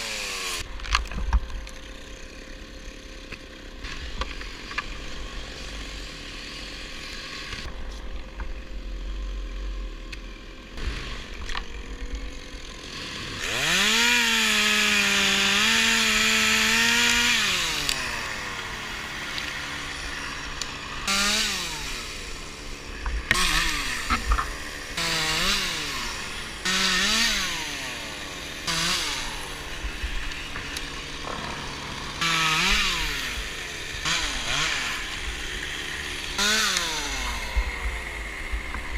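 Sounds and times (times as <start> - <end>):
chainsaw engine revving: 0.0 - 0.7, 10.4 - 38.9.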